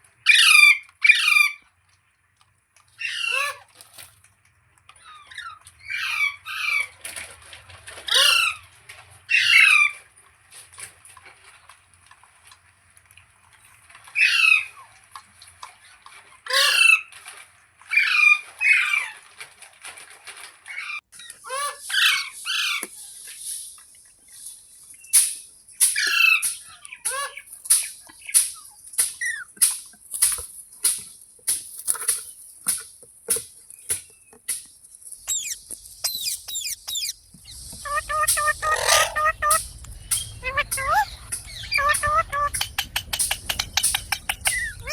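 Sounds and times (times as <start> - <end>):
parrot squawking: 3.0 - 3.6, 35.2 - 44.9.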